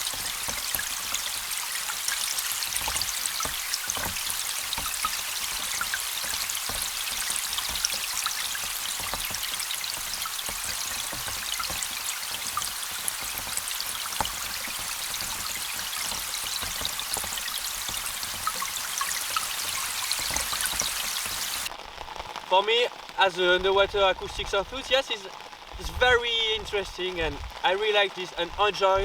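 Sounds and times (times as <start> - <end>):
underwater rain hiss: 0.0 - 21.7.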